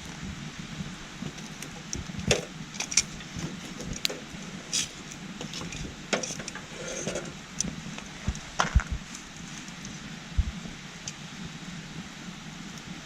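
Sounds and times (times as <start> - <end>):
campfire popping and crackling: 0.0 - 13.0
small stream rushing: 0.0 - 13.0.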